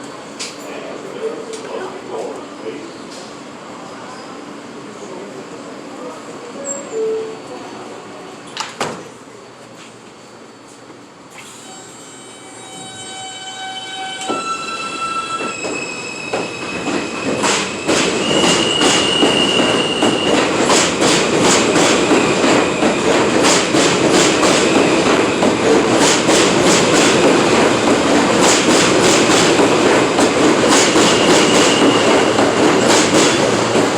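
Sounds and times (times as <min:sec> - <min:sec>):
high wheel squeal: 0:11.6 - 0:20.5, 0:31.0 - 0:32.4
train wheels clacking over rail joints: 0:15.6 - 0:33.9.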